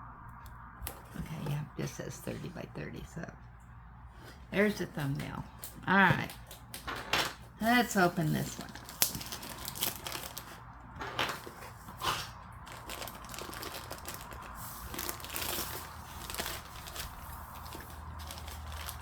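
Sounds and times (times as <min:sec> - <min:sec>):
packaging crinkling and rustling: 0:05.2 - 0:19.0.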